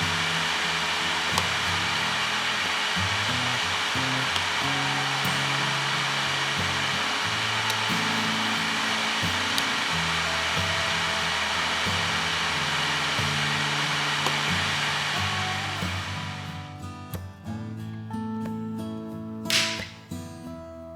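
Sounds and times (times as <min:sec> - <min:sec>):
heater fan blowing: 0:00.0 - 0:16.6.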